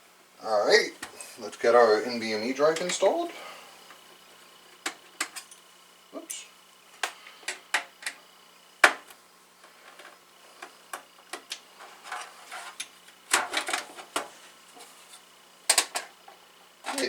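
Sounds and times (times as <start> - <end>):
small parts clicking and clattering: 9.6 - 14.3, 15.7 - 16.2.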